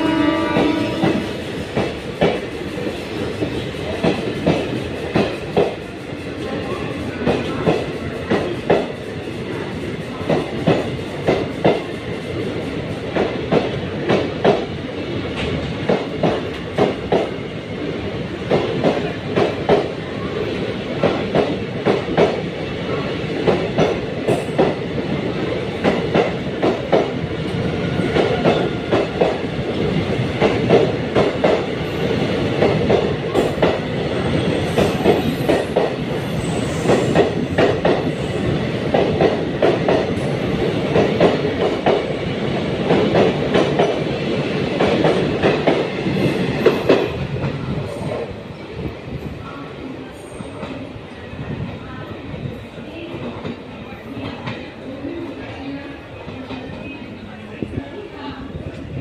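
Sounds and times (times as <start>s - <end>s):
train rumble: 0.0s - 59.0s
train wheels clacking on rail joints: 0.1s - 17.4s.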